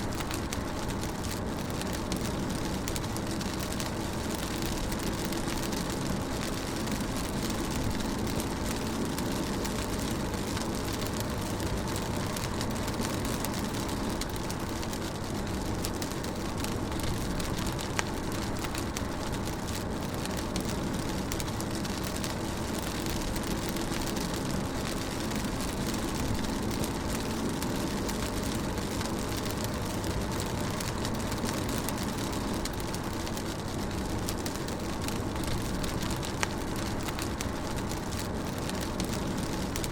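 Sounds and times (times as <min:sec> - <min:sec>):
rain drumming on car roof: 0:00.0 - 0:39.9
sharp raindrop hits: 0:00.0 - 0:39.9.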